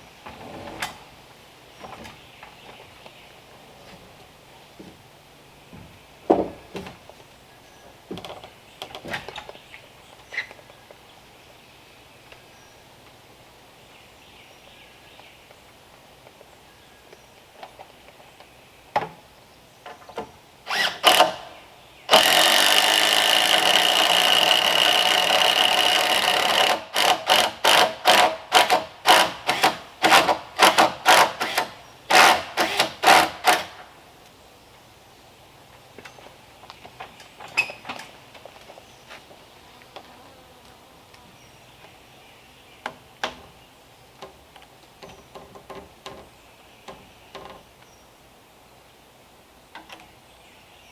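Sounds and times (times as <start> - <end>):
knocks of wood and tools: 4.8 - 5.0, 5.7 - 7.3, 8.1 - 9.6
power tool whining: 20.7 - 33.8.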